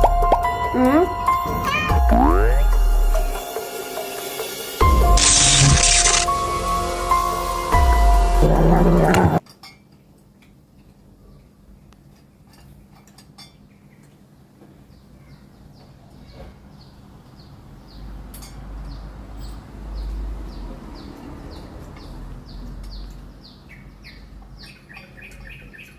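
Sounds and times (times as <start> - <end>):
bird chirping: 5.2 - 6.3, 22.5 - 25.9.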